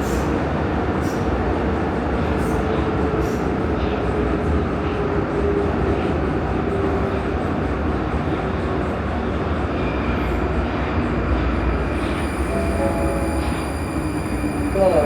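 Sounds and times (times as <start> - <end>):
faint held tone: 11.8 - 15.0.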